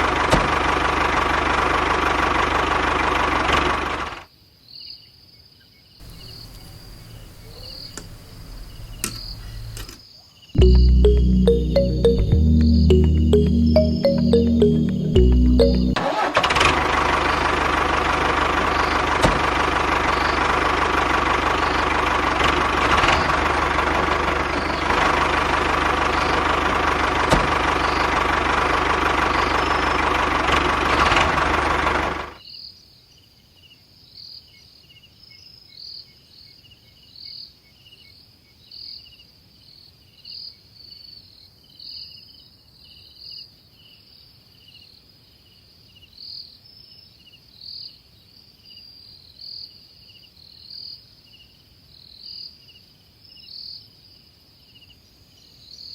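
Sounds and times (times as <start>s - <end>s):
crickets chirping: 6.0s - 10.5s
tractor motor running: 6.1s - 10.0s, 16.0s - 32.3s.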